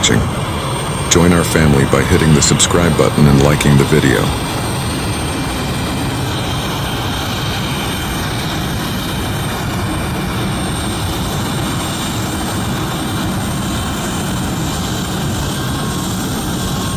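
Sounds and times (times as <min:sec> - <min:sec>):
aircraft engine drone: 0:00.0 - 0:16.9.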